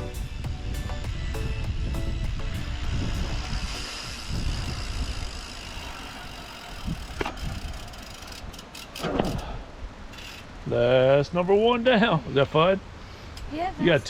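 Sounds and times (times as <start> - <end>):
wind rushing over microphone: 0.0 - 8.0, 9.0 - 11.0
bicycle tyre rumble: 0.0 - 10.6
short high squeals: 3.4 - 10.6.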